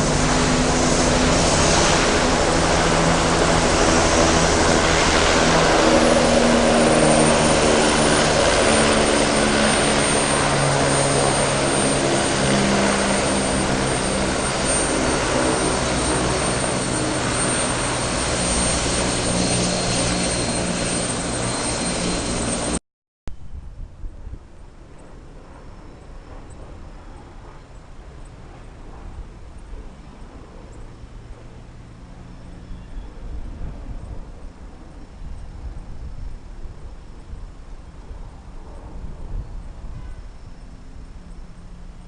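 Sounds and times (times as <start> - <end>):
aircraft engines whining: 0.0 - 22.8.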